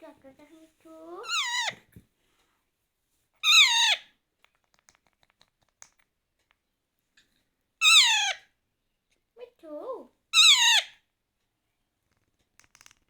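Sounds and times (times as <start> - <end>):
parrot chick calling: 1.2 - 1.8, 3.4 - 4.1, 7.8 - 8.5, 10.4 - 11.0.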